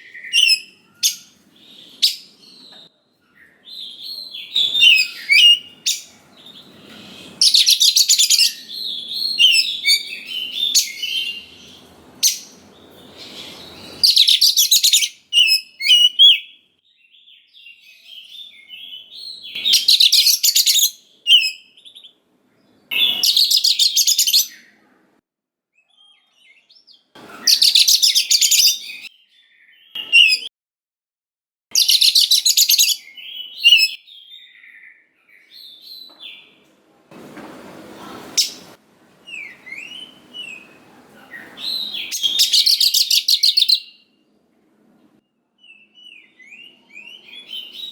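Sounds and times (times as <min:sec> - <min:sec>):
bird singing whistled phrases: 0:00.0 - 0:02.4, 0:03.4 - 0:06.1, 0:13.3 - 0:16.6, 0:31.8 - 0:35.5, 0:41.6 - 0:44.0.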